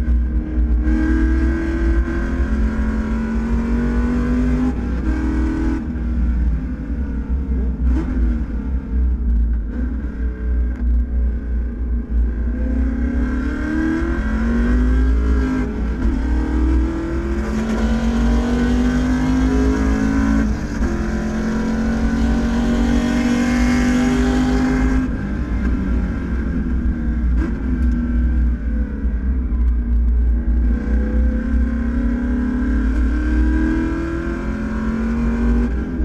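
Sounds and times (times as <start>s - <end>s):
race car engine accelerating: 12.7s - 28.0s.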